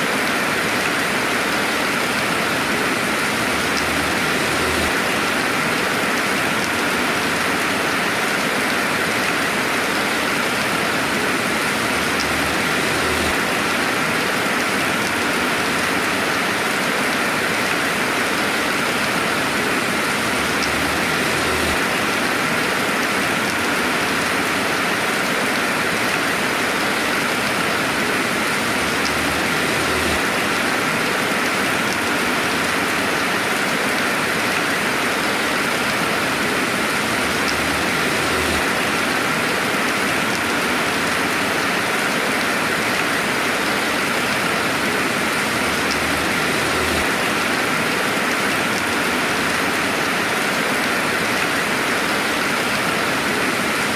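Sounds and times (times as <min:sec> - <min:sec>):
steady rainfall: 0:00.0 - 0:53.9
raindrop ticks: 0:11.8 - 0:15.9, 0:20.2 - 0:21.8, 0:28.5 - 0:30.7, 0:33.6 - 0:41.4, 0:45.3 - 0:47.4.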